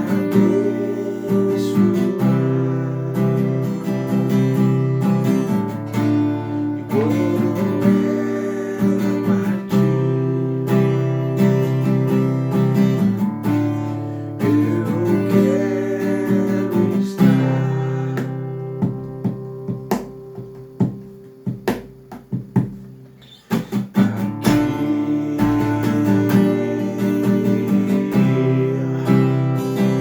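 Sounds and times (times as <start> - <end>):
acoustic guitar playing: 0.0 - 30.0.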